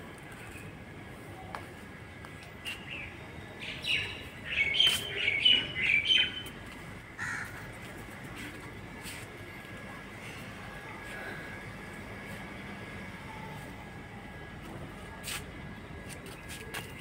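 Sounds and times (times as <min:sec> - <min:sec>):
birds chirping: 0:02.6 - 0:06.6.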